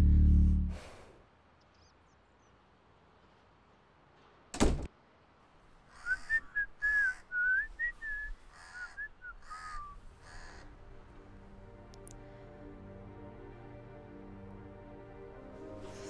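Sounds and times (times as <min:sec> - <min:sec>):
wooden door shutting: 0:04.5 - 0:04.9
person whistling a tune: 0:06.6 - 0:08.3.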